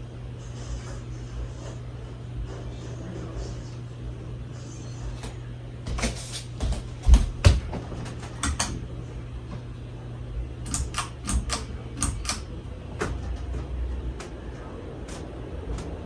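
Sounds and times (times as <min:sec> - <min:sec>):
ceiling fan motor hum: 0:00.0 - 0:16.0
sharp clicks and ticks: 0:08.4 - 0:08.8, 0:10.6 - 0:12.6.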